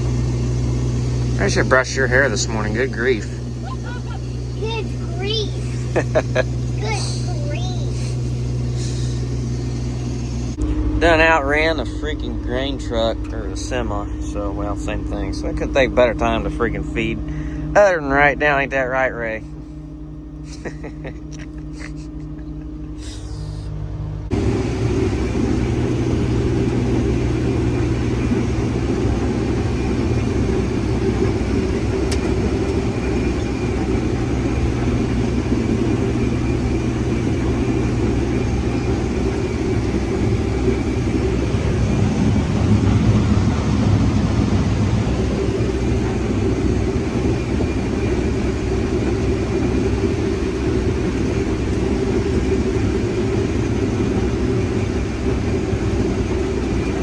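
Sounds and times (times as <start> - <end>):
heavy machinery engine droning: 0.0 - 57.0.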